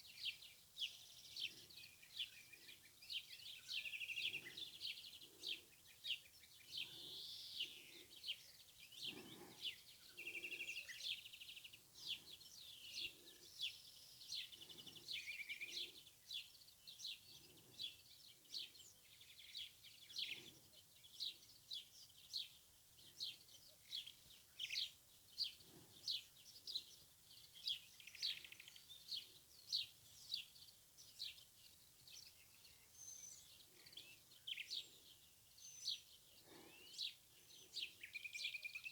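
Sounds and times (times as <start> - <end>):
birds chirping: 0.0 - 38.9
faint outdoor background: 0.0 - 38.9.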